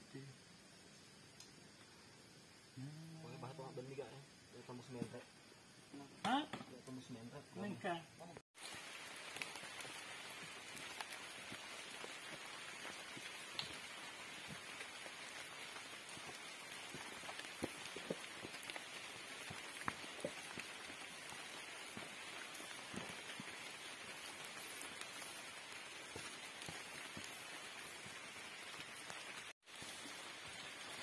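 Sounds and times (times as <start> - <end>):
rain falling: 8.6 - 31.0.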